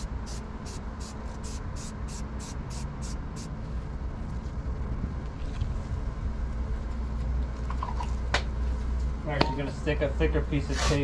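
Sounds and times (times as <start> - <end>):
spray can hissing bursts: 0.0 - 3.5
steady low rumble: 0.0 - 10.7.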